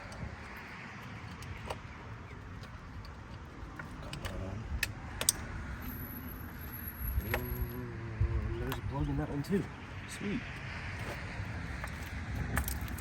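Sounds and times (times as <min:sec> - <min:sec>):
tools and parts clinking: 0:00.0 - 0:07.8, 0:11.8 - 0:13.0.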